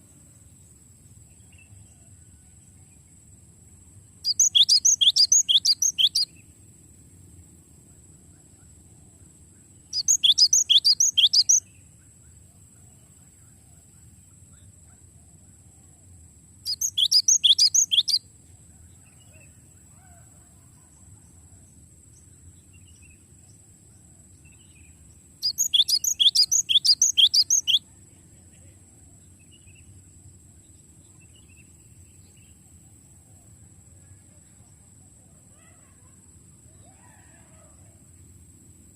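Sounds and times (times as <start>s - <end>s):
bird whistling song: 4.2s - 6.3s, 9.9s - 11.7s, 16.7s - 18.2s, 25.4s - 27.8s.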